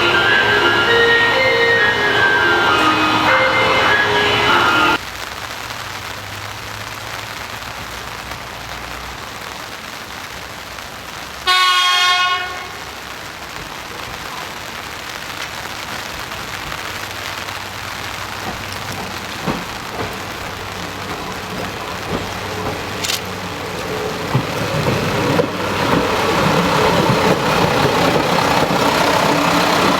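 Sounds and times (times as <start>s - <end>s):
train horn: 11.4s - 13.1s.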